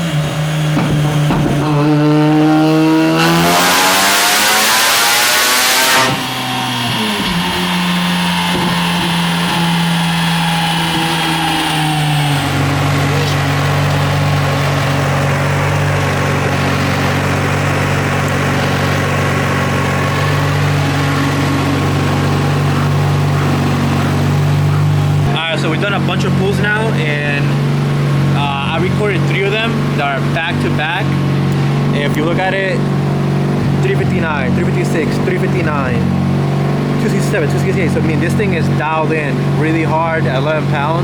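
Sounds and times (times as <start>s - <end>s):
rotary engine revs dropping: 0.0s - 41.0s.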